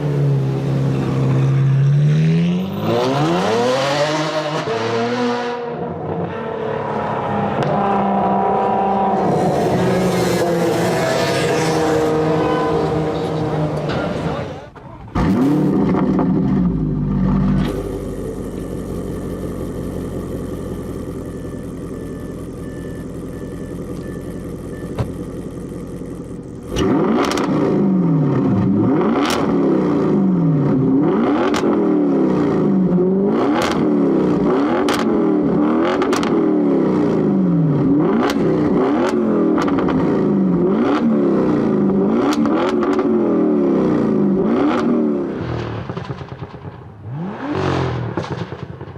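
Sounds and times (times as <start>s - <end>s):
car engine revving: 0.0s - 48.9s
exhaust crack: 13.7s - 22.5s, 44.5s - 48.9s.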